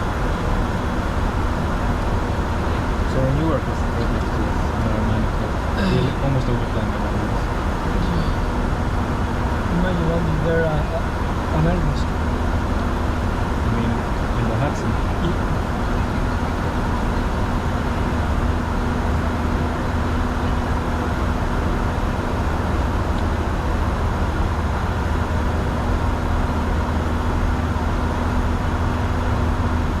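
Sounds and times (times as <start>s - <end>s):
cockpit airflow and engine drone: 0.0s - 30.0s
constant low hum: 0.0s - 30.0s.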